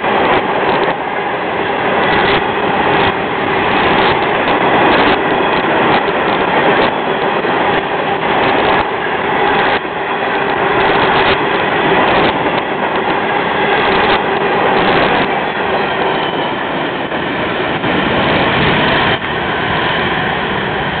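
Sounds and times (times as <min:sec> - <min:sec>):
freight cars rumbling on rails: 0:00.0 - 0:21.0.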